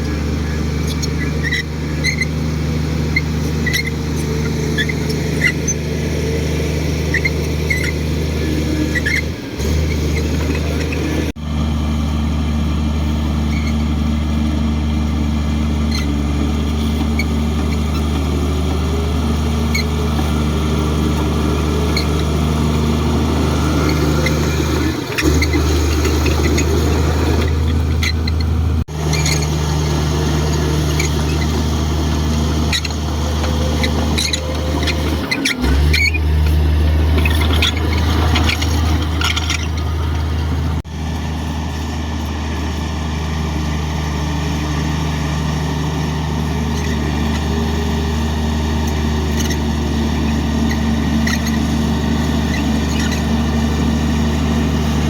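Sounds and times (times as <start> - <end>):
short high squeaks: 0.0 - 11.4, 13.3 - 40.9, 45.5 - 55.0
bulldozer diesel engine running: 0.0 - 55.0.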